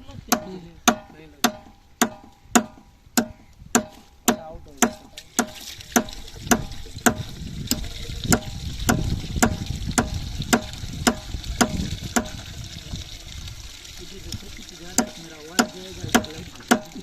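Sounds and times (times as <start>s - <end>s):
low rushing water-like noise: 4.1s - 17.0s.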